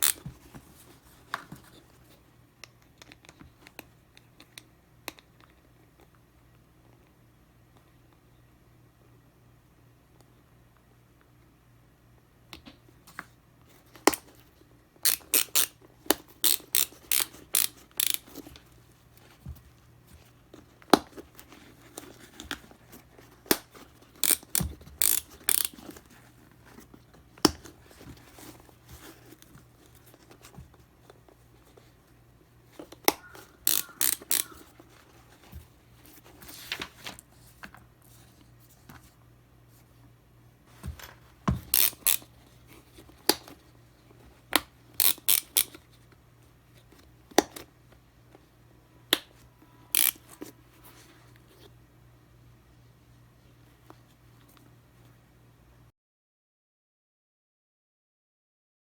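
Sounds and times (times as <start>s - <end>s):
ratchet clicking: 15.1s - 15.7s, 16.4s - 18.3s, 24.2s - 25.8s, 33.6s - 34.6s, 41.7s - 42.2s, 45.0s - 45.8s, 50.0s - 50.2s.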